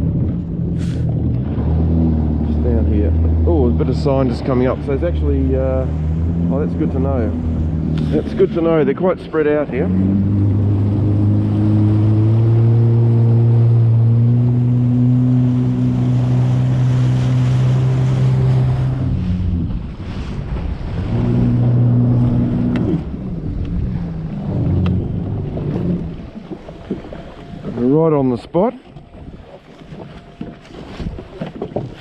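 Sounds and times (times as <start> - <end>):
jet ski engine running: 0.0 - 32.0
water and wind rushing: 0.0 - 32.0.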